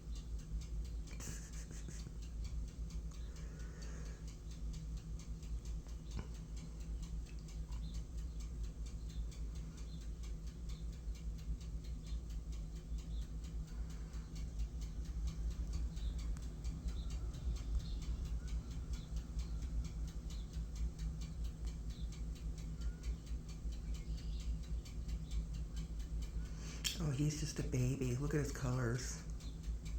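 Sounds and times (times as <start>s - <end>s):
steady low hum: 0.0s - 29.9s
ducks' bills clicking while feeding: 0.8s - 4.2s.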